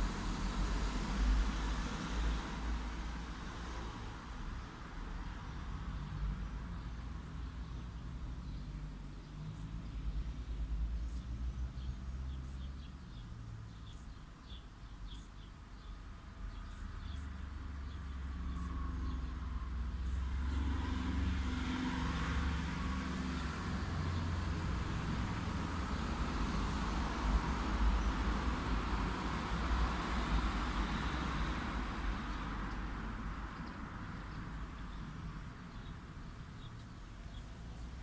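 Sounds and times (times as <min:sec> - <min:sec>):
car passing by: 0:17.7 - 0:34.8.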